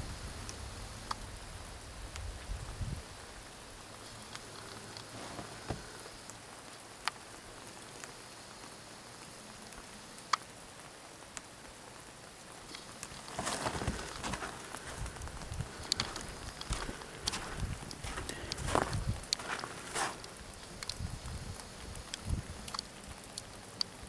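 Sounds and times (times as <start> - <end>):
hiss of falling snow: 4.2 - 10.3, 12.9 - 23.7
loud rustle: 13.0 - 20.3.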